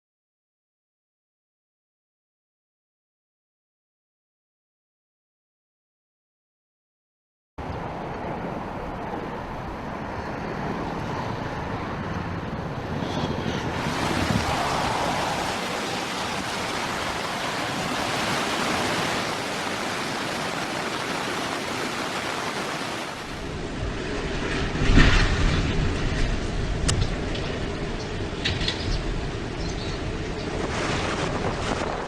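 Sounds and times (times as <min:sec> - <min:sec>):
storm wind and water rushing: 0:13.6 - 0:27.4.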